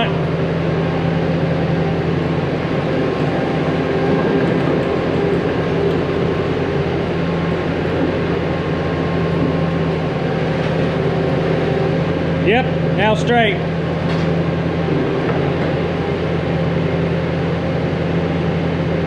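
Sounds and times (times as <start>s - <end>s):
loader engine droning: 0.0s - 19.0s.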